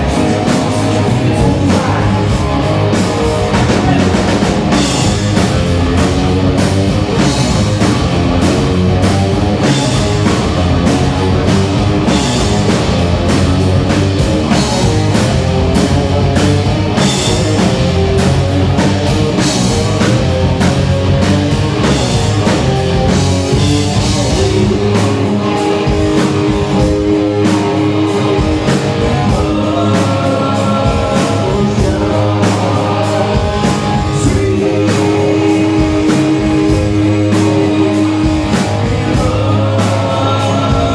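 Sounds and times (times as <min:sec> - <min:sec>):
person singing: 0:00.0 - 0:05.0, 0:24.2 - 0:40.9
drums: 0:00.0 - 0:40.9
electric guitar: 0:00.0 - 0:40.9
rock music: 0:00.0 - 0:40.9.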